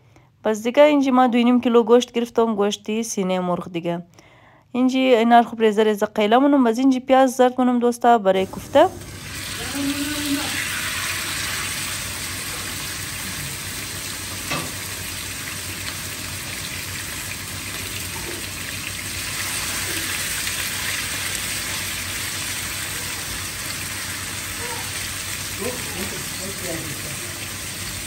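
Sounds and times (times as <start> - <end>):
oil sizzling in a pan: 8.5 - 28.0.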